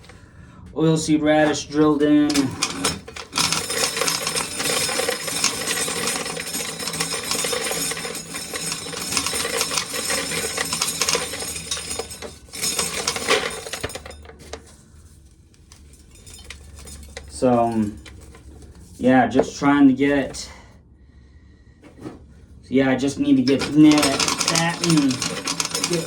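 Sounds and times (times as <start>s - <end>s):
corn kernels rattling against metal: 1.4s - 14.8s, 15.7s - 19.6s, 23.3s - 26.0s.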